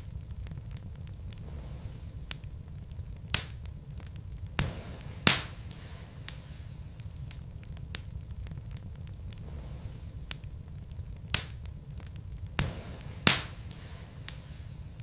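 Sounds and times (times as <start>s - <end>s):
low fire rumble: 0.0s - 15.0s
wood fire crackling: 0.0s - 15.0s
logs snapping: 2.2s - 6.5s, 10.2s - 14.5s.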